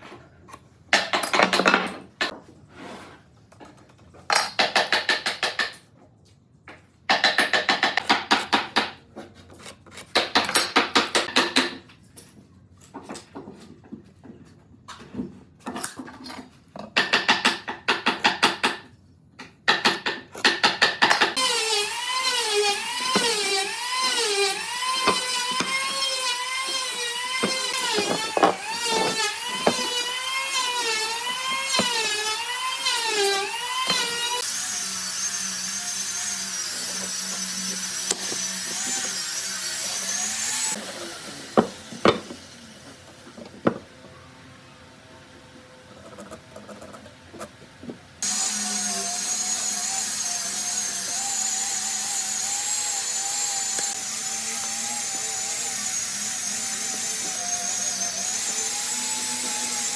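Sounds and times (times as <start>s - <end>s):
power tool whining on wood: 21.4s - 43.8s, 48.2s - 59.9s.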